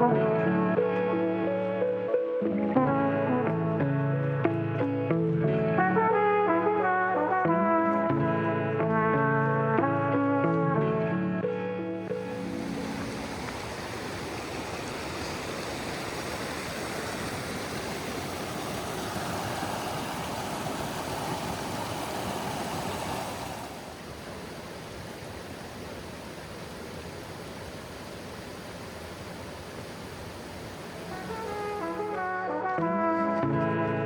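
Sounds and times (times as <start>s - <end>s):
steady rushing noise: 12.1s - 27.9s.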